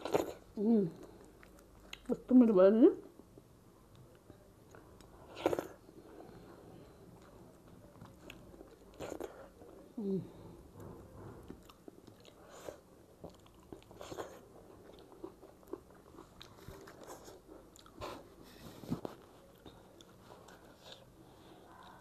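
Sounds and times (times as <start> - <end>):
person chewing and smacking food: 1.0 - 2.2, 10.8 - 21.1.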